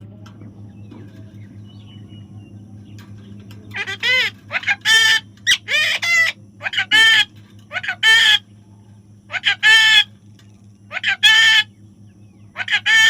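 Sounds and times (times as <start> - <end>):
low steady hum: 0.0 - 13.0
parrot calling: 3.7 - 8.5, 9.3 - 10.2, 10.9 - 11.7, 12.5 - 13.0.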